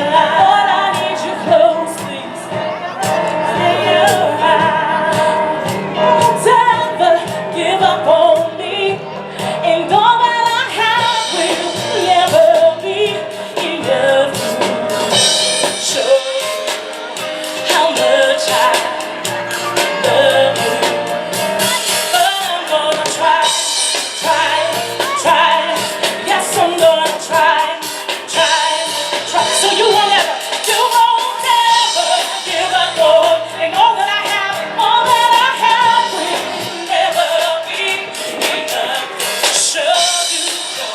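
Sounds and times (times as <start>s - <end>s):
drum kit with cymbals: 0.0s - 40.9s
piano: 0.0s - 40.9s
women singing gospel: 0.0s - 40.9s.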